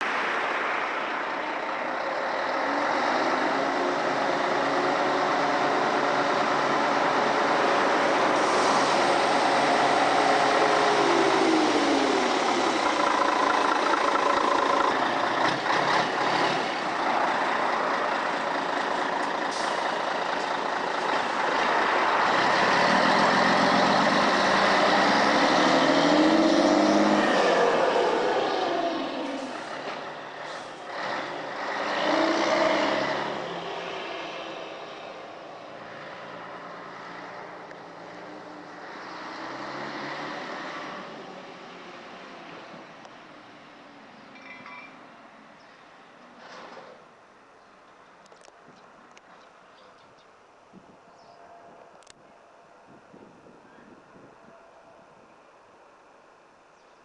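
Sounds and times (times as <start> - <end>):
diesel truck engine running: 1.6 - 25.9.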